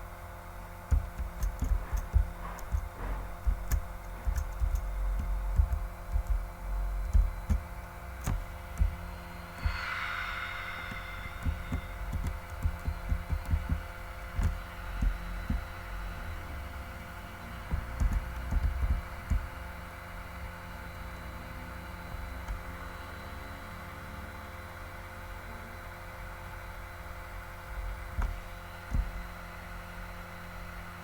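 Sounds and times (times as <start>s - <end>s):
large airplane drone: 0.7s - 20.0s
low thumps: 0.9s - 16.3s, 17.7s - 19.6s.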